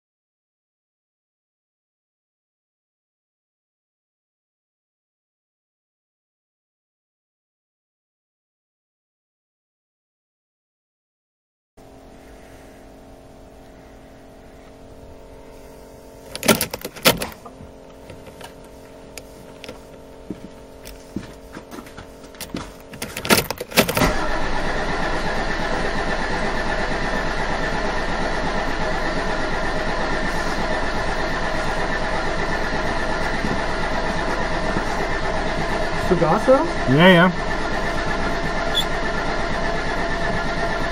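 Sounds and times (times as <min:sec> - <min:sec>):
faint steady hum: 0:11.8 - 0:24.2
diesel engine cranking and idling: 0:11.8 - 0:40.9
sharp clicks: 0:16.3 - 0:17.4, 0:22.4 - 0:24.1.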